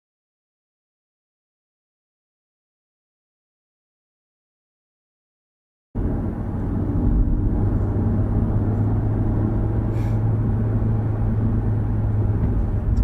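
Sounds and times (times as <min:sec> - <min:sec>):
car engine and road noise: 0:06.0 - 0:13.0.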